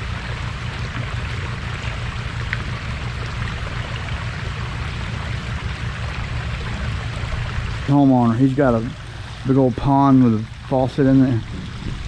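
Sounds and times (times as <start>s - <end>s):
constant low hum: 0.0s - 12.0s
running water rushing: 0.0s - 12.0s.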